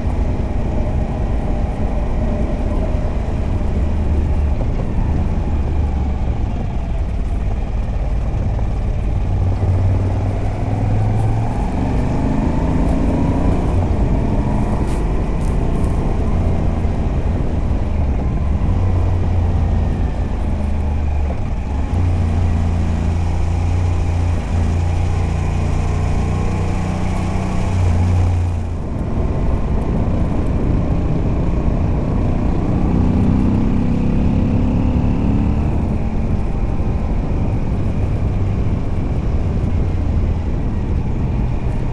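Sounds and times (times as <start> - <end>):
motorcycle engine under load: 0.0 - 31.2
wind noise: 0.0 - 41.9.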